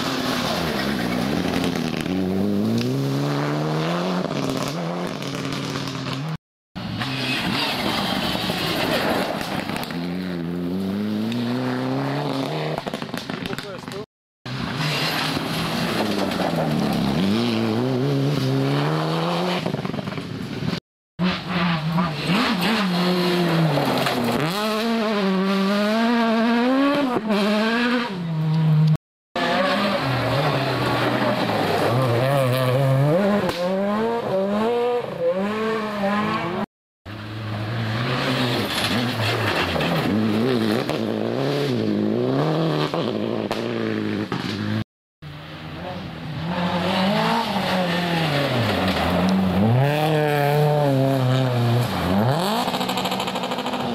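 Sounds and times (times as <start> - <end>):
rally car engines revving: 0.0 - 53.9.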